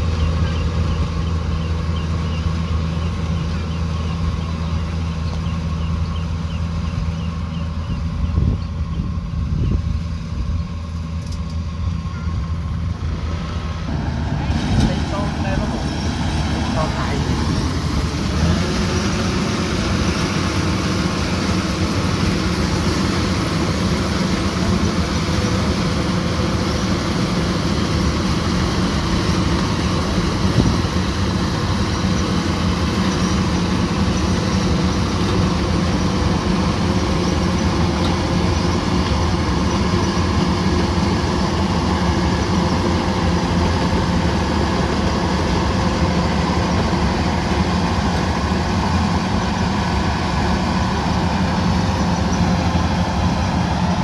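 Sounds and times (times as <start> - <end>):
combine harvester droning: 0.0 - 54.0.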